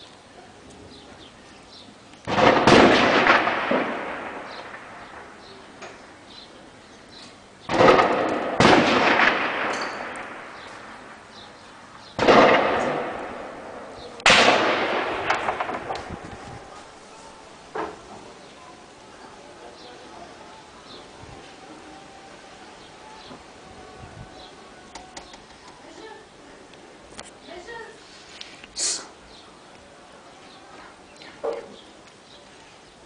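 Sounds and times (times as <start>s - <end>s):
artillery blasts echoing: 2.2s - 5.6s, 7.7s - 11.4s, 12.1s - 16.8s.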